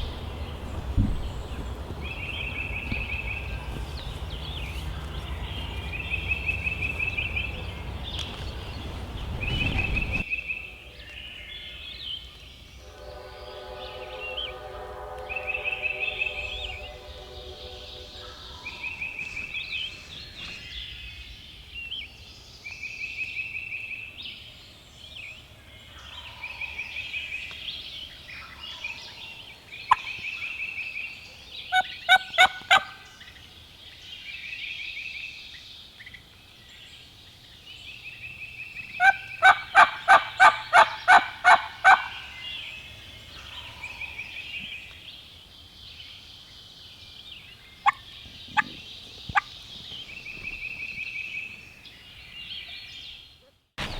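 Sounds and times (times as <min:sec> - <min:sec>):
wild turkey yelping: 0:31.7 - 0:33.1, 0:39.0 - 0:42.4.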